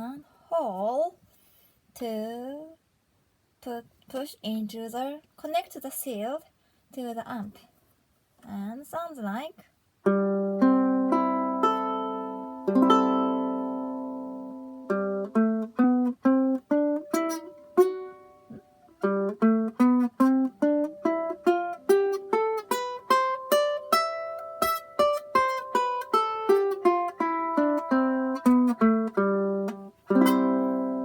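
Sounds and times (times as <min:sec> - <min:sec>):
ukulele strummed and picked: 0:10.0 - 0:31.0.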